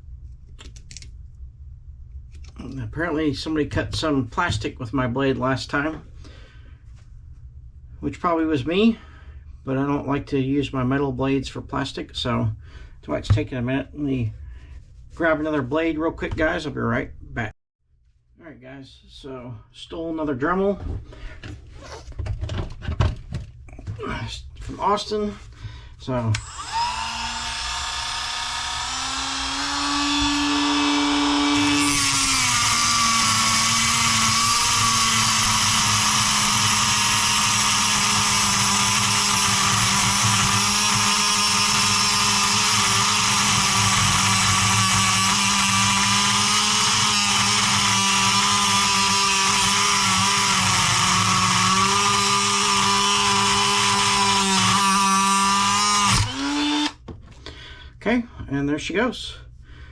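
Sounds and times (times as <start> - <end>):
rotary tool humming: 26.4 - 56.9
cut-off wheel grinding metal: 26.4 - 57.0.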